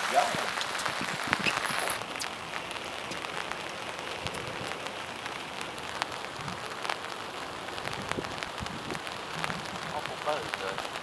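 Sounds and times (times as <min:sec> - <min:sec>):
rain hissing: 0:00.0 - 0:11.0
raindrop ticks: 0:00.2 - 0:11.0.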